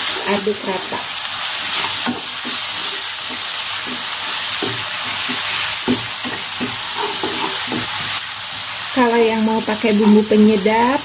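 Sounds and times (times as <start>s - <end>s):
paste frying in hot oil: 0.0s - 11.0s
wooden spatula scraping a wok: 1.6s - 8.2s.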